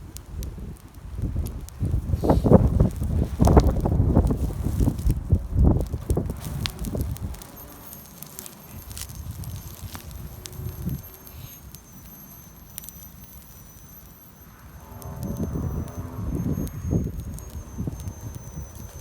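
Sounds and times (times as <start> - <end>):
campfire crackling: 0.0 - 19.0
fire popping: 0.0 - 19.0
faint high whine: 6.4 - 19.0.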